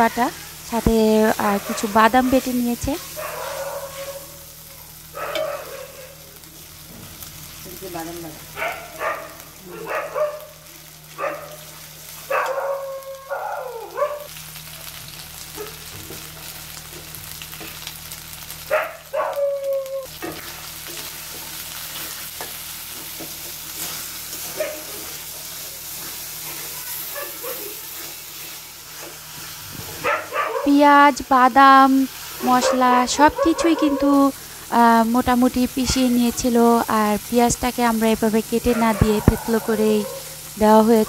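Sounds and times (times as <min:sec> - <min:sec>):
paste sizzling in hot oil: 0:00.0 - 0:09.7, 0:20.1 - 0:41.0.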